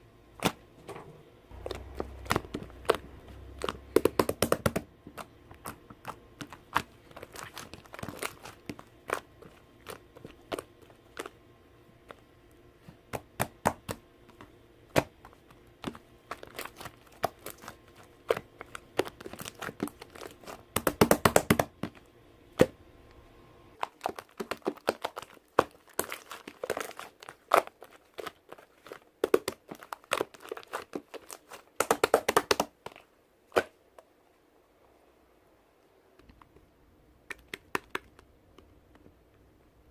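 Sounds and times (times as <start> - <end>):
slime clicking and popping: 1.6 - 11.4, 16.4 - 21.8, 23.8 - 32.7.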